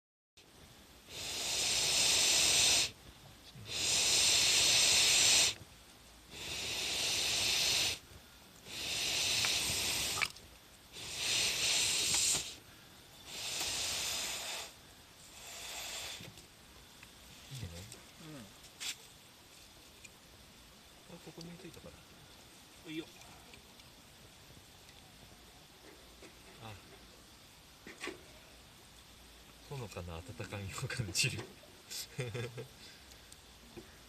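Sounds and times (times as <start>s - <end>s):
fire popping faintly: 0.4s - 34.0s
person blowing air into fire: 1.0s - 3.0s, 3.6s - 5.6s, 6.3s - 8.0s, 8.6s - 12.6s, 13.2s - 16.4s.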